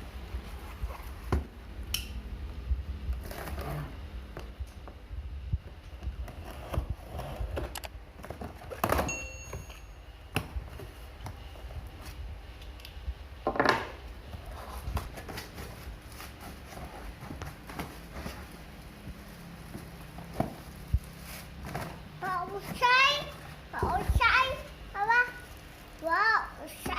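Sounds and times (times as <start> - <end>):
packaging rustling scrapes: 14.4 - 22.8.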